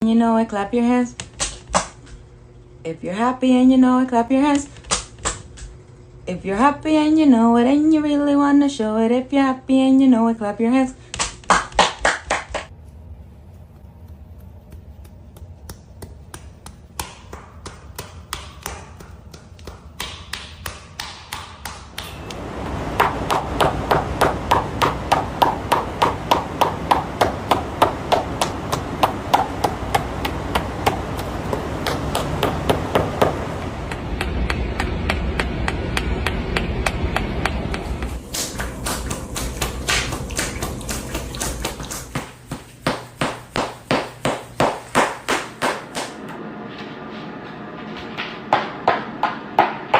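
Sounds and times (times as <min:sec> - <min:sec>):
rhythmic sharp slaps: 0:11.2 - 0:12.7, 0:13.8 - 0:46.2.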